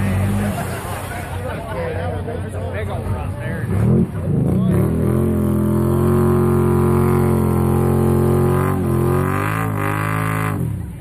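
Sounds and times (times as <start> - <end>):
vehicle engine at high revs: 3.6 - 11.0.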